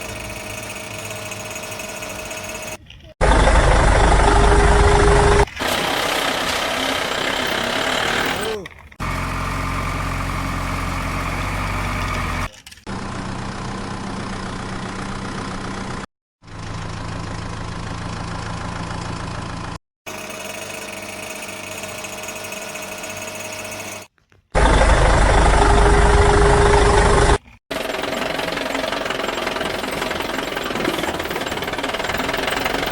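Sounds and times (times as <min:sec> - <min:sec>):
engine idling: 0:03.2 - 0:19.8, 0:24.6 - 0:32.9.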